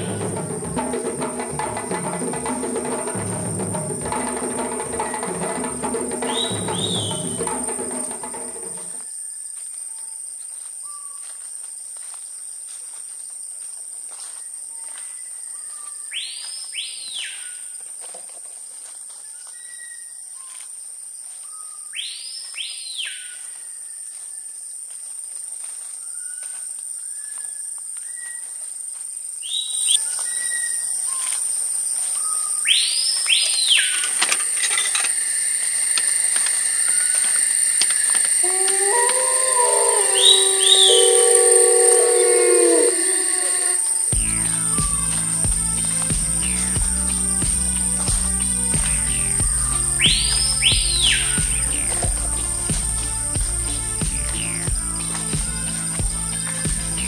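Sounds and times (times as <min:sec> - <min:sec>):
looping bird call: 0:00.0 - 0:08.9, 0:32.1 - 0:47.3, 0:48.1 - 0:54.9
insects droning: 0:00.0 - 0:57.0.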